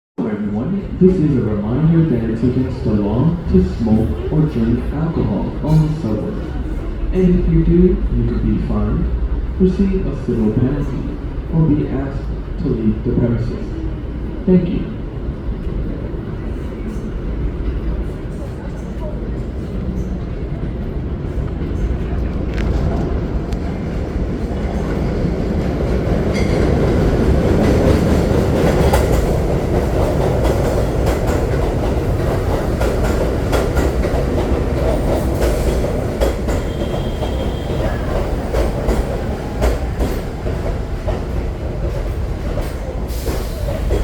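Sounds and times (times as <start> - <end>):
subway train rumbling: 0.2 - 44.0
wheels clacking over rail joints: 21.2 - 44.0.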